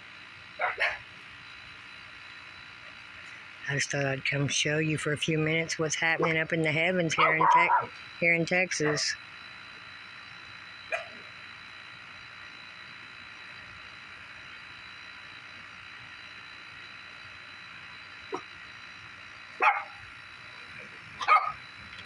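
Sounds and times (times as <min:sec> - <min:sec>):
high-pitched background drone: 0:00.0 - 0:22.0
dog barking: 0:00.6 - 0:01.0, 0:07.2 - 0:07.9, 0:10.9 - 0:11.2, 0:19.6 - 0:20.0, 0:21.2 - 0:21.6.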